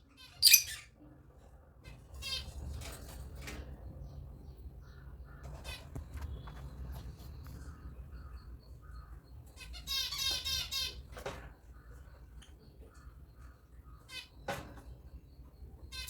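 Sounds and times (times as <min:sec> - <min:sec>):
lovebirds screeching calls: 0:00.2 - 0:00.9
soft short bird chirps: 0:00.4 - 0:00.8.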